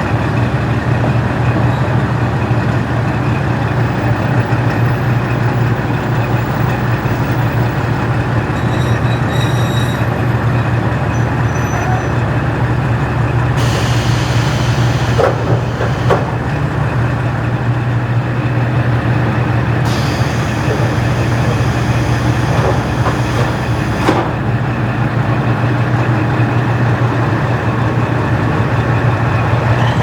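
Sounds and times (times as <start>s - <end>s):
railcar diesel engine drone: 0.0s - 30.0s
train wheel running noise: 3.8s - 30.0s
short squeals: 8.5s - 10.4s, 11.1s - 12.2s, 29.4s - 30.0s
hiss: 13.6s - 16.4s, 19.9s - 24.0s.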